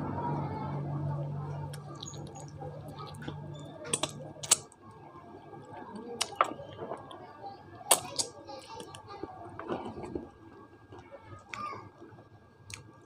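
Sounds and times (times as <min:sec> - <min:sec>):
person chewing with mouth smacks: 0:01.7 - 0:04.8.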